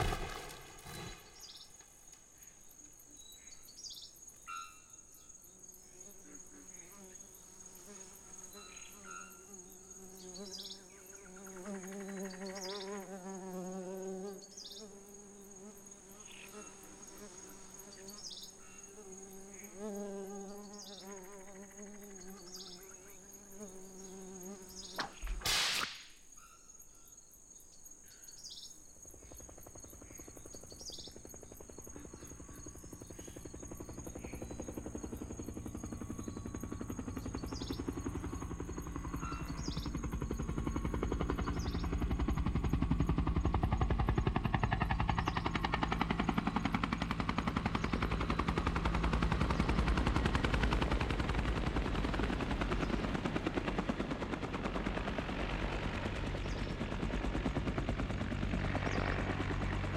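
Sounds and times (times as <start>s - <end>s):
insect buzzing: 0.0s - 42.4s
short loud noise: 25.2s - 26.1s.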